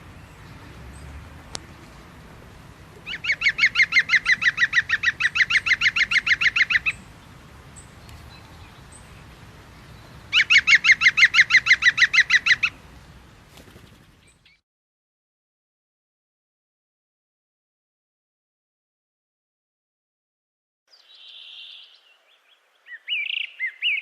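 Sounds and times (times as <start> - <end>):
bird calling rapid repeated notes: 3.0 - 7.0, 10.3 - 12.8.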